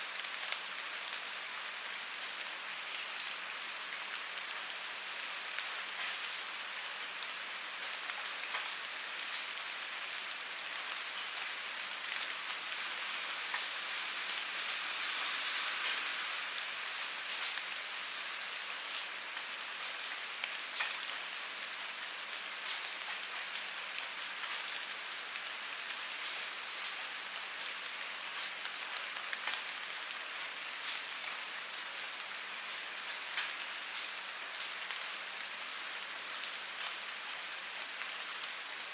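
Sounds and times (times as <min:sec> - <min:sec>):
rain hiss: 0:00.0 - 0:38.9
raindrop hits close by: 0:07.2 - 0:09.5.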